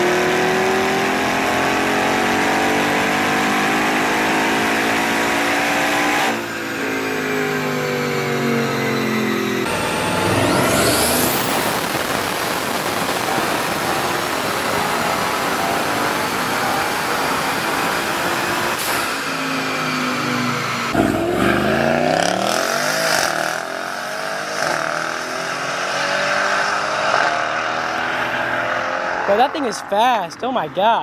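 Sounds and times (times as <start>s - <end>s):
engine revving up and down: 0.0s - 29.6s
car engine at full throttle: 0.0s - 30.2s.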